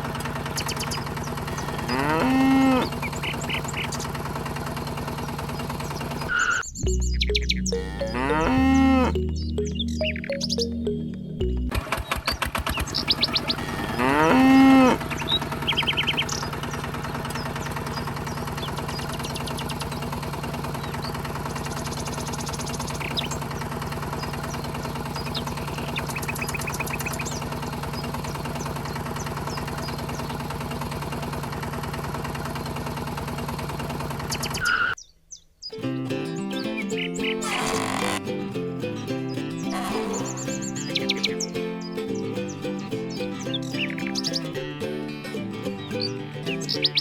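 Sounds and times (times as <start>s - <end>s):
low pulsing engine drone: 0.0s - 11.7s, 12.8s - 35.0s, 37.4s - 38.2s, 39.4s - 44.7s
bird chirps: 0.4s - 4.2s, 4.8s - 30.4s, 36.5s - 38.0s, 39.6s - 44.5s
cow mooing: 1.5s - 3.0s, 7.8s - 9.2s, 13.5s - 15.1s, 37.4s - 38.2s, 39.7s - 40.6s.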